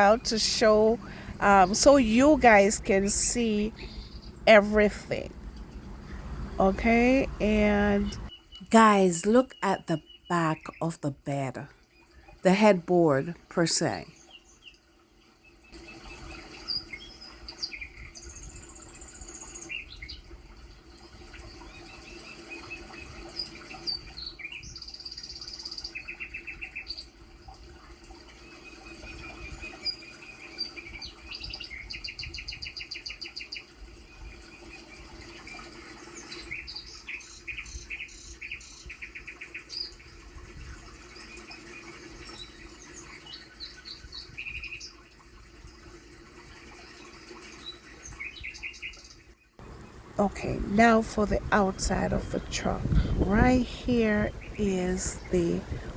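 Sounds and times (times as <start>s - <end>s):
low hum and rumble: 0.0s - 9.0s, 49.6s - 55.9s
small birds chirping and trilling: 0.0s - 12.4s, 14.0s - 45.2s, 46.4s - 55.9s.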